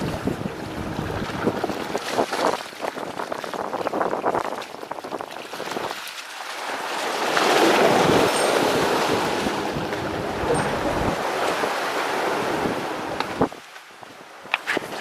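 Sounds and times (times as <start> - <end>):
wind buffeting microphone: 0.0 - 6.1, 7.2 - 15.0
sea surf washing in: 6.4 - 14.5.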